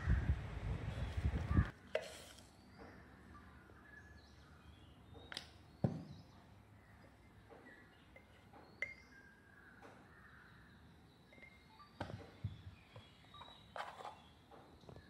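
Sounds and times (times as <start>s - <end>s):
faint bird calls: 0.0s - 15.0s.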